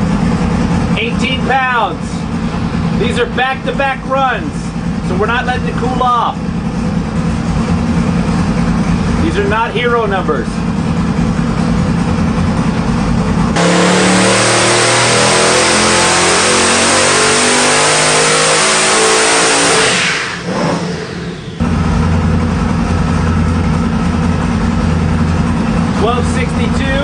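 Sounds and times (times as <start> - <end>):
engine idling: 0.0 - 27.0
engine revving at full throttle: 11.8 - 27.0.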